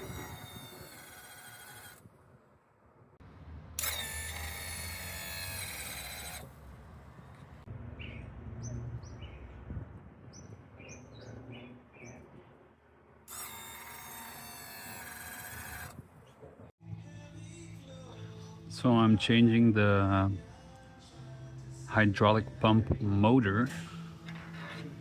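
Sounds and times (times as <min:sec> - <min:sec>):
small electric motor whining: 0:00.0 - 0:02.1, 0:03.8 - 0:06.6, 0:13.3 - 0:16.0.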